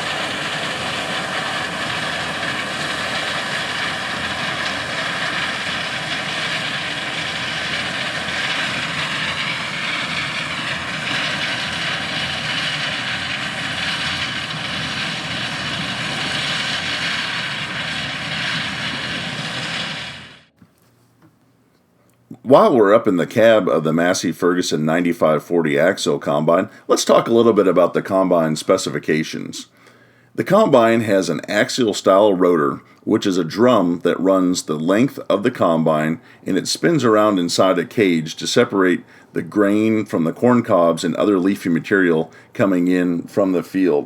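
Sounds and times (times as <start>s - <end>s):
diesel harvest machinery running: 0.0s - 20.5s, 35.6s - 44.0s
faint steady whine: 0.0s - 44.0s.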